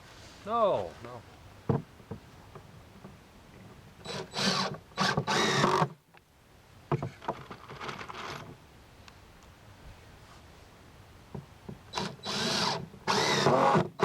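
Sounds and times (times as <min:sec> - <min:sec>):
power drill driving screws into wood: 0:04.0 - 0:06.0, 0:11.9 - 0:14.0.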